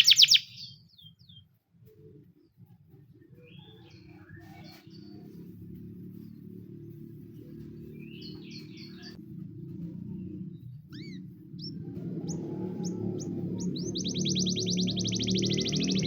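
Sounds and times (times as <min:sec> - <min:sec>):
canary singing: 0:00.0 - 0:01.1, 0:10.9 - 0:16.0.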